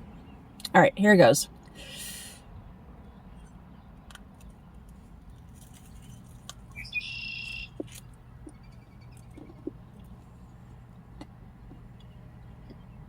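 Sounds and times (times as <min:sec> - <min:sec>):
faint crunchy clicks: 0:03.4 - 0:10.3.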